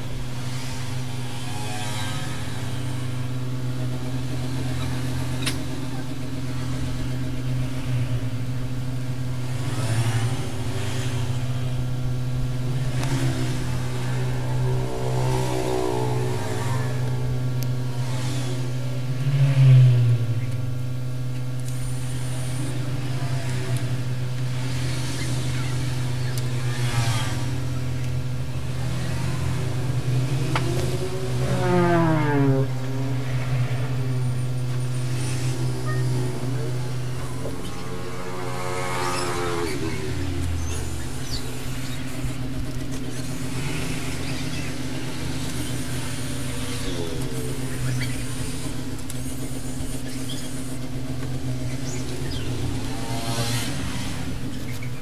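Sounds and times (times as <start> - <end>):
steady low hum: 0.0 - 55.0
vehicle engine passing by: 9.4 - 20.8, 21.9 - 55.0
gliding pitched tone: 12.6 - 19.4, 29.3 - 53.6.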